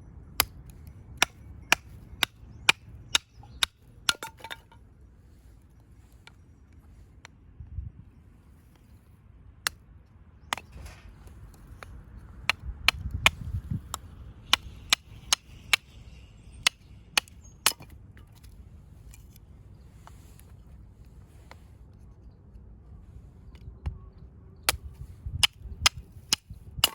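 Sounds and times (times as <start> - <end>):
blade striking wood: 1.2 - 4.8, 11.8 - 15.9, 16.6 - 18.6, 24.7 - 26.9.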